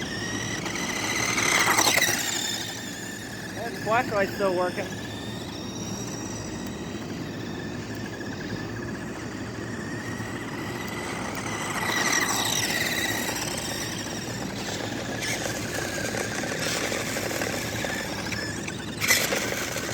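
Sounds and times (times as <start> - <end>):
toy car electric motor whining: 0.0 - 19.9.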